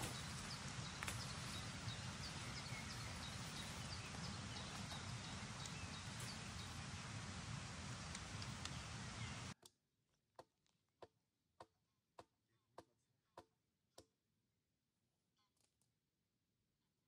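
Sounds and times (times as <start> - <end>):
outdoor hiss: 0.0 - 9.6.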